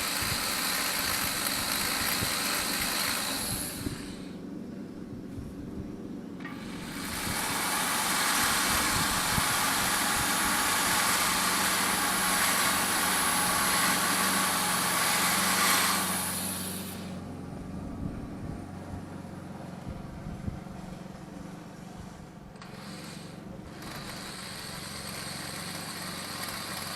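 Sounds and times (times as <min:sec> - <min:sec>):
rotary grinder grinding metal: 0:00.0 - 0:04.3, 0:06.4 - 0:17.2, 0:22.6 - 0:26.9
steady low hum: 0:00.0 - 0:24.3.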